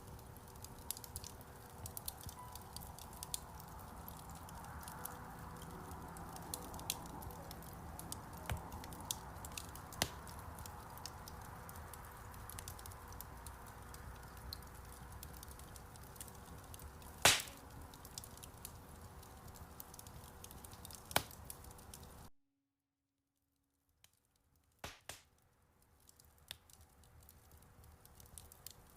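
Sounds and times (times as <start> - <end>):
fire hissing: 0.0 - 22.2
fire crackling and popping: 0.0 - 22.3, 24.0 - 28.9.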